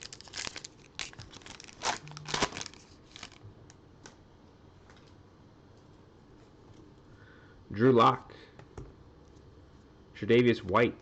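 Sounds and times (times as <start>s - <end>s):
wrapper tearing and crinkling: 0.0s - 3.4s.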